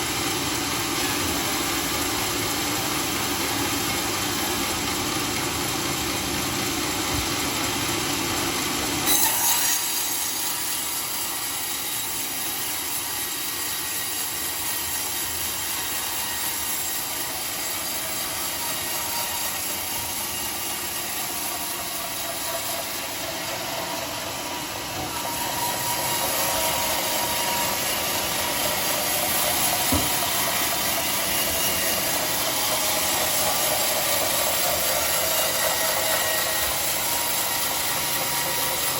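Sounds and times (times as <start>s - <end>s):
sawmill machine humming: 0.0s - 38.9s
saw blade cutting wood: 8.6s - 38.9s.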